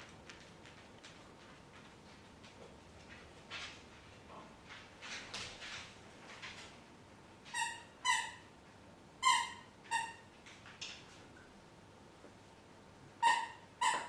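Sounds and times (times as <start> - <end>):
dog yipping: 13.2 - 14.0.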